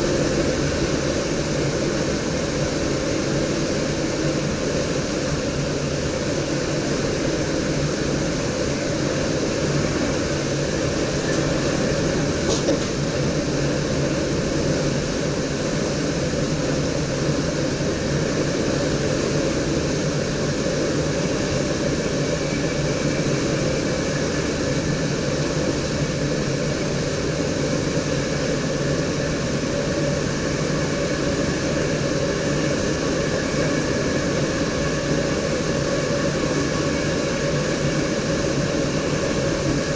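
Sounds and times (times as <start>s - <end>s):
train wheels rumbling on rail: 0.0s - 39.9s
cab airflow: 8.0s - 16.1s
faint high whine: 13.0s - 39.9s.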